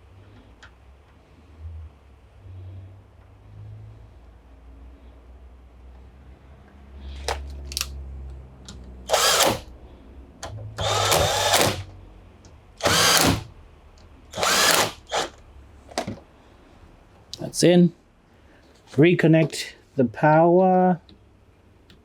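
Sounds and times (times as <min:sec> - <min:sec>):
power drill-driver bursts: 0:09.1 - 0:09.7, 0:10.4 - 0:11.9, 0:12.8 - 0:13.5, 0:14.3 - 0:15.4.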